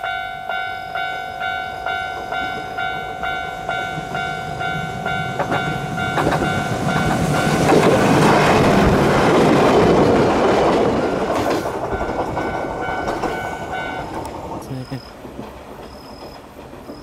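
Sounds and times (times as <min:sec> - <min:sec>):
steady high tone: 0:00.0 - 0:08.3, 0:11.8 - 0:14.2
electric train passing: 0:00.0 - 0:17.0.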